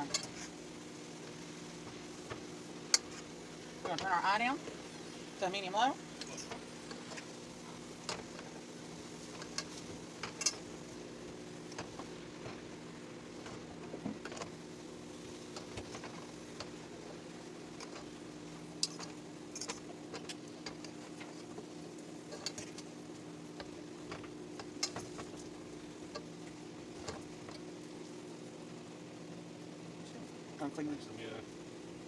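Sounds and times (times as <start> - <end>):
utensils clinking against a pan: 0.0 - 0.5, 9.3 - 10.7, 18.8 - 20.9, 22.3 - 22.8
steady low hum: 0.0 - 32.0.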